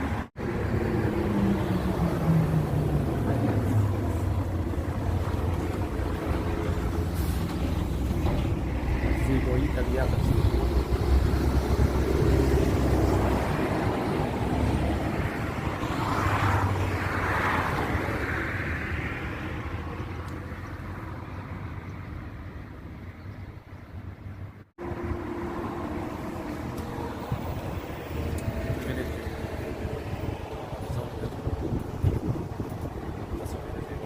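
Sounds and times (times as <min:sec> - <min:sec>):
vehicle passing: 0:00.0 - 0:22.8
motorway traffic rumble: 0:00.0 - 0:34.0.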